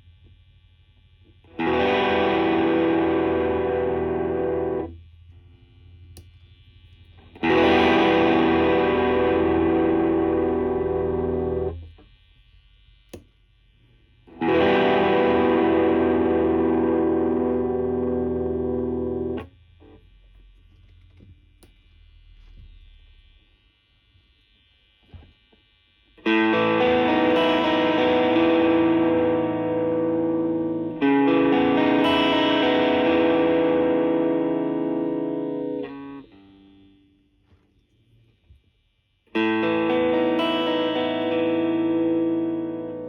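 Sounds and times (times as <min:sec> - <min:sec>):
overdriven electric guitar chords: 0:01.4 - 0:05.0, 0:07.2 - 0:12.0, 0:14.3 - 0:20.0, 0:26.2 - 0:37.1, 0:39.3 - 0:43.0.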